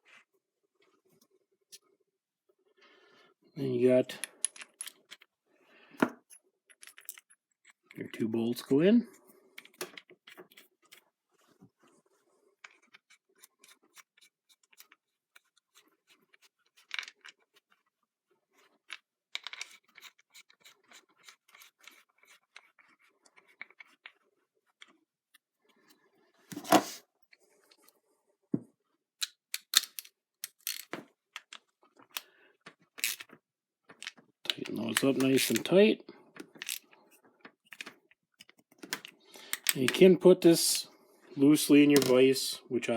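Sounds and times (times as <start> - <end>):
small metal clicks and scrapes: 18.6 - 25.4, 29.2 - 35.7, 36.4 - 40.0.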